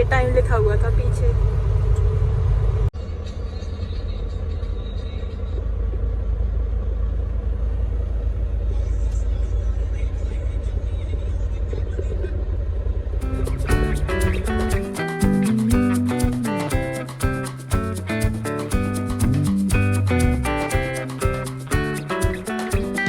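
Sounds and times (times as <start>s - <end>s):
truck engine and road rumble: 0.0s - 22.7s.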